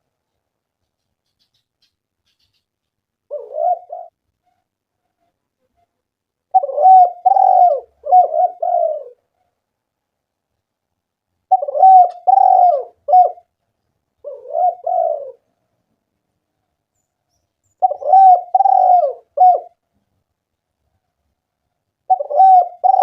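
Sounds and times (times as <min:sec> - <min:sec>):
dove cooing: 0:03.3 - 0:04.2, 0:06.5 - 0:09.3, 0:11.5 - 0:13.5, 0:14.2 - 0:15.5, 0:17.8 - 0:19.8, 0:22.0 - 0:23.0.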